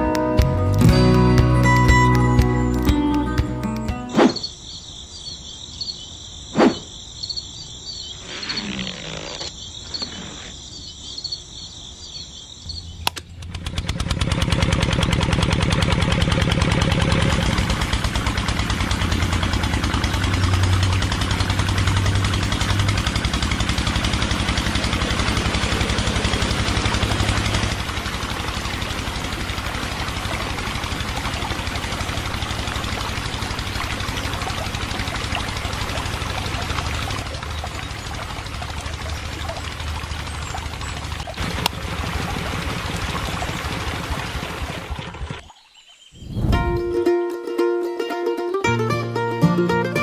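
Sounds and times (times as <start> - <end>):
insects chirring: 4.2 - 13.4
small engine running: 13.3 - 45.5.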